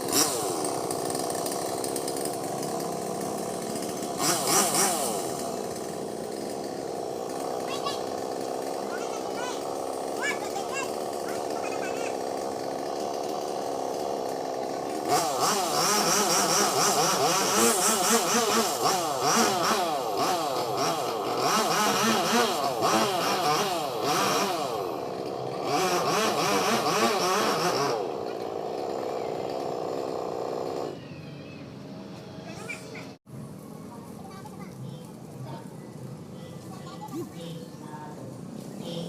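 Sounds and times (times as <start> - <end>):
chainsaw cutting wood: 0.0 - 31.0.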